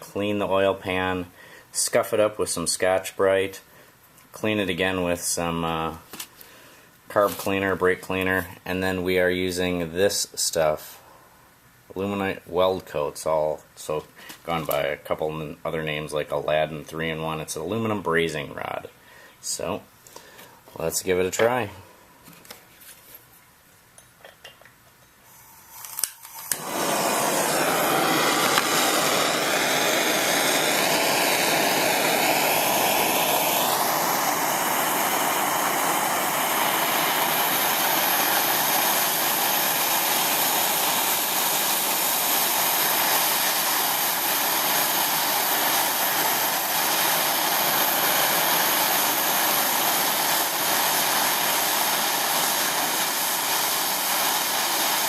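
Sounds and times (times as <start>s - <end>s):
gas torch hissing: 25.3s - 55.0s
wavering whistle of flame: 26.5s - 55.0s.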